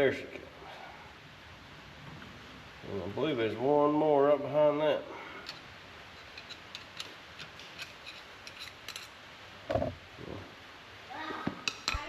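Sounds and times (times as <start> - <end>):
dull knocks: 9.7 - 10.0.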